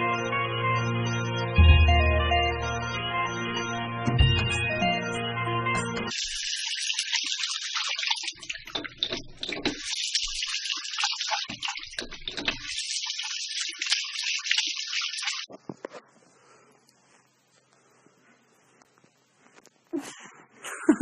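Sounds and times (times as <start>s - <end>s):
running water: 6.1s - 15.5s
water splashes: 6.1s - 15.5s.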